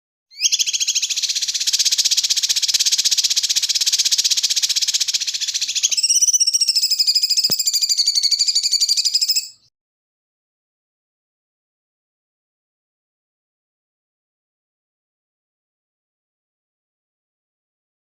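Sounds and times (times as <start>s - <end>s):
high-pitched pulsing bird trill: 0.3s - 9.7s
wavering warbling bird trill: 0.3s - 9.7s.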